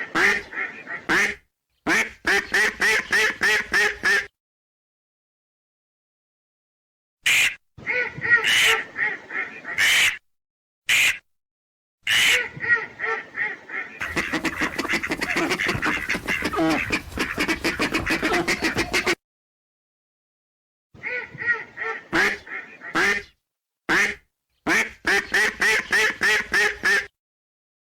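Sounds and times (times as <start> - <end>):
ducks quacking: 0.0 - 4.3, 12.1 - 19.2, 21.0 - 23.3.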